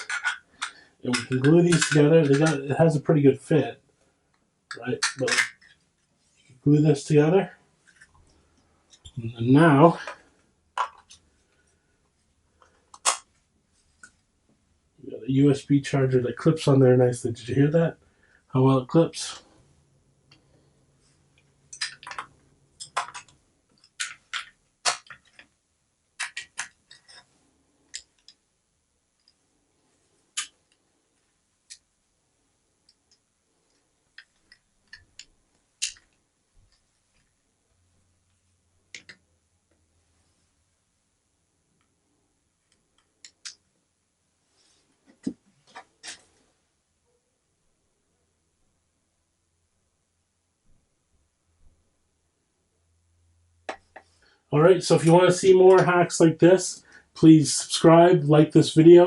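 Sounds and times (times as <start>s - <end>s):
plastic clicks and snaps: 0.0s - 2.6s, 4.3s - 5.8s, 12.6s - 13.3s, 21.7s - 25.5s, 26.2s - 27.2s, 32.8s - 36.8s.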